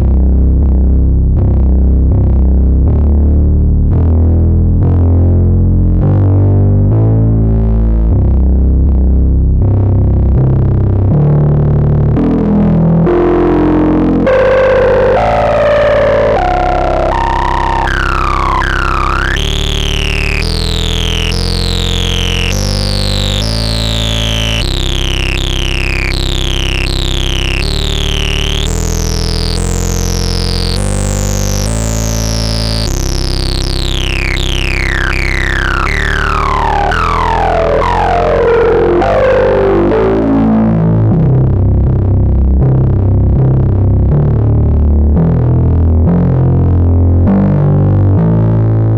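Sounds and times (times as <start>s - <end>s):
synthesizer falling zaps: 12.2s - 41.7s.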